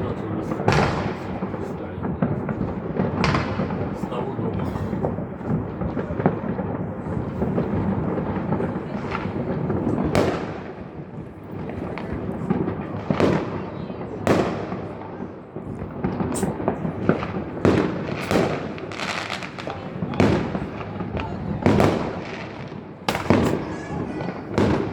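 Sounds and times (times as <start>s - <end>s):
rumble of fireworks launches: 0.0s - 24.9s
fireworks shells bursting: 15.7s - 24.9s.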